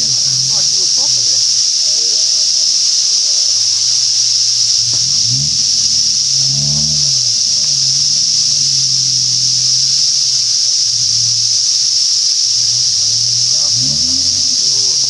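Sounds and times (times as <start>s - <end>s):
loud high-pitched hiss: 0.0s - 15.0s
truck engine running at low revs: 0.0s - 15.0s.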